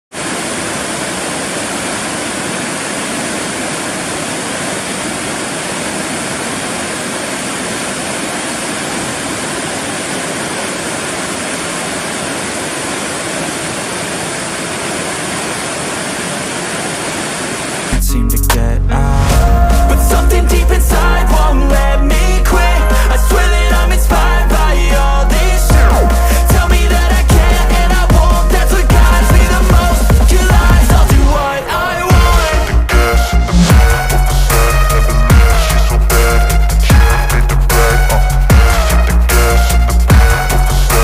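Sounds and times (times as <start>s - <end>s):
rushing river water: 0.1s - 18.0s
loud music with heavy bass: 18.0s - 41.0s.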